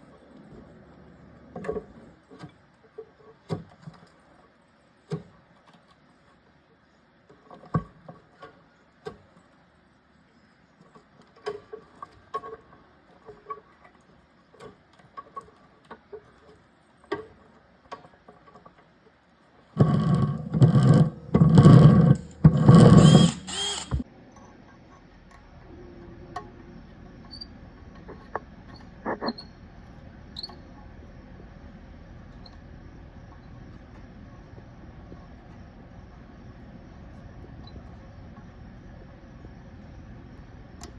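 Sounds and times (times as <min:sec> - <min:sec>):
faint steady hum: 0:00.0 - 0:40.9
power drill bursts: 0:22.6 - 0:24.0.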